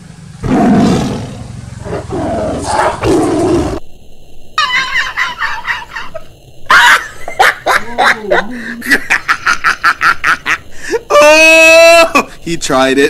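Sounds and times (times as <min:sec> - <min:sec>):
tiger roaring: 0:00.4 - 0:03.8.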